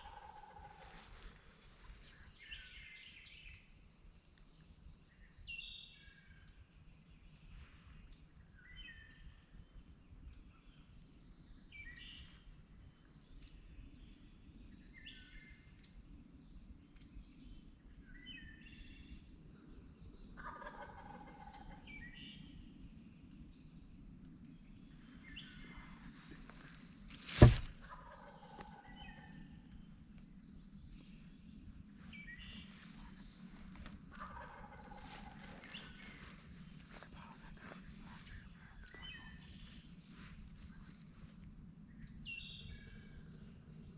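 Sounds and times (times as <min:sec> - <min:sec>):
sharp loud bang: 0:27.4 - 0:27.7
small bird calls: 0:30.9 - 0:41.3
wild turkey gobbling: 0:33.8 - 0:36.3.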